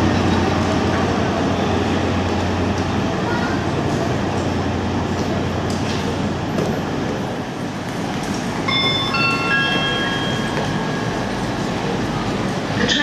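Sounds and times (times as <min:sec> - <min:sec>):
diesel train engine running: 0:00.0 - 0:13.0
public address chime: 0:08.7 - 0:13.0.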